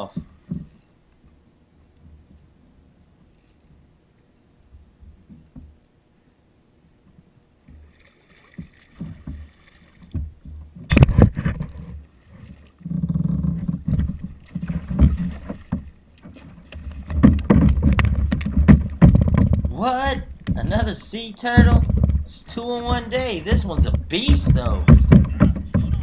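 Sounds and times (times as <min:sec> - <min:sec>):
water sloshing around kayak: 0:07.7 - 0:19.7.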